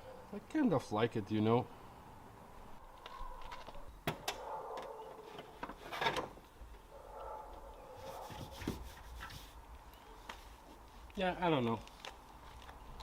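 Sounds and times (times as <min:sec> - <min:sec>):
faint rubbing: 0:07.9 - 0:09.6.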